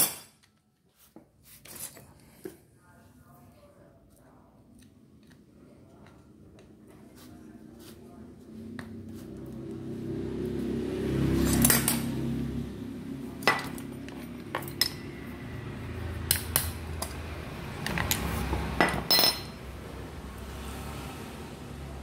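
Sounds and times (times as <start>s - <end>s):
metal tools clinking: 17.8s - 19.6s.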